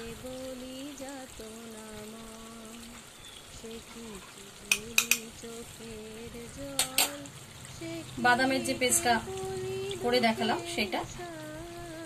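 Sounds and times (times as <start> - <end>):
curry sizzling gently: 0.0 - 12.0.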